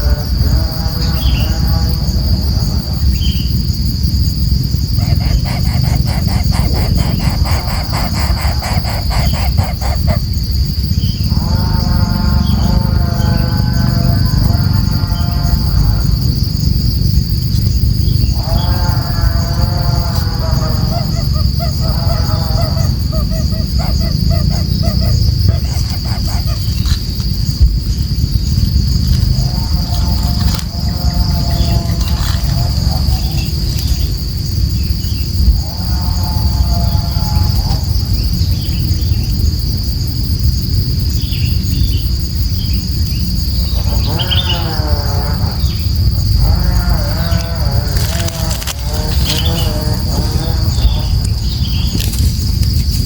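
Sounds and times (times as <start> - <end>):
cricket trill: 0.0 - 53.0
bird hooting calls: 5.0 - 16.2, 18.0 - 28.2, 43.6 - 53.0.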